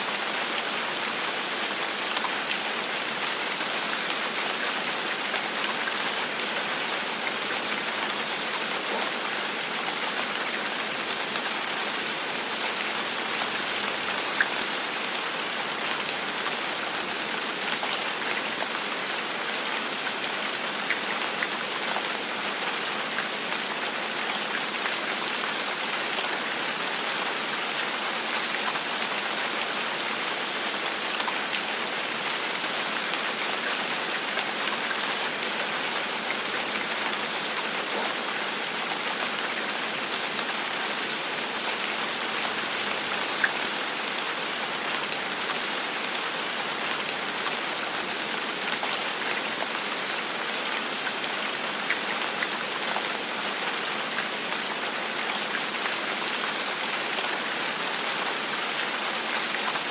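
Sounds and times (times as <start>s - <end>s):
gentle rain hiss: 0.0s - 59.9s.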